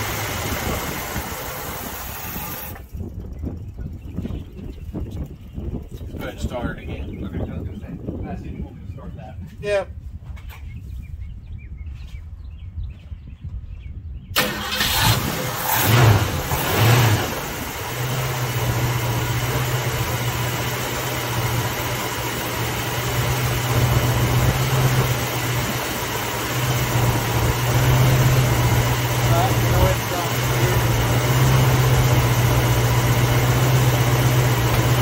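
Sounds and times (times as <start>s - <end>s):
car engine starting and revving: 0.0s - 2.9s, 14.3s - 35.0s
car engine idling: 0.0s - 4.5s, 14.4s - 35.0s.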